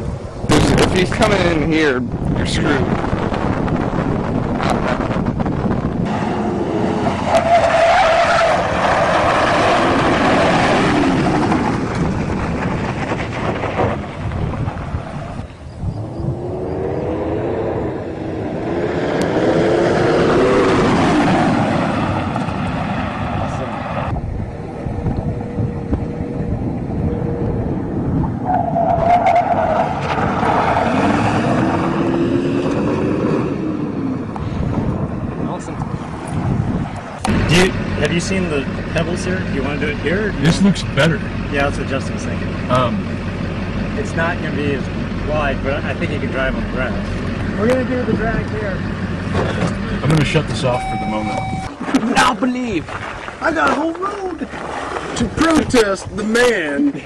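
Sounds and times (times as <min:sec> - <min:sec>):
wind buffeting microphone: 0:00.0 - 0:57.0
tyres skidding on dirt: 0:02.5 - 0:27.2, 0:28.2 - 0:35.0, 0:35.8 - 0:56.8
truck engine running: 0:34.2 - 0:51.8.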